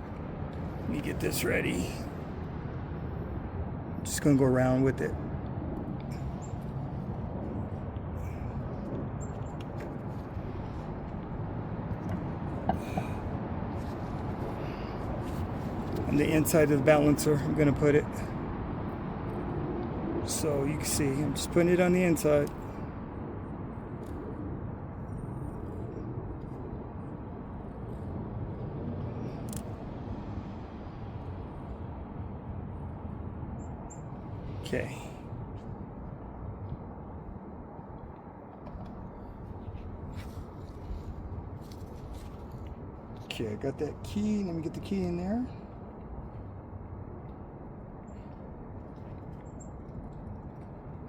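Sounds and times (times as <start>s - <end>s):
low outdoor background rumble: 0.0s - 51.0s
faint small clicks: 29.4s - 29.8s.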